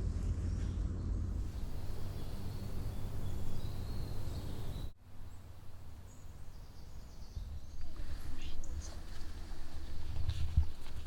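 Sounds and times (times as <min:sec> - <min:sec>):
low rumble: 0:00.0 - 0:05.0
small birds chirping: 0:00.9 - 0:11.0.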